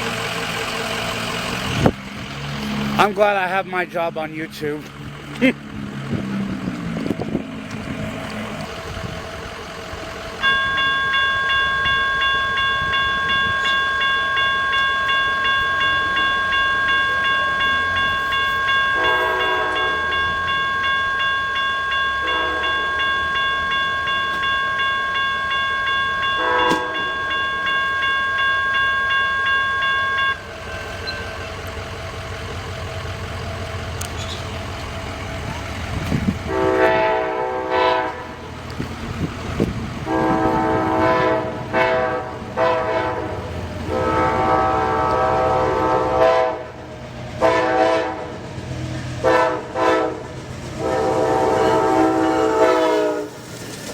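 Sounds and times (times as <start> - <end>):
railroad crossing bell dinging: 0.0 - 53.6
distant train horn blasts: 18.9 - 20.5, 22.2 - 23.5, 26.2 - 28.1, 36.4 - 38.4, 40.0 - 48.4, 49.2 - 53.4.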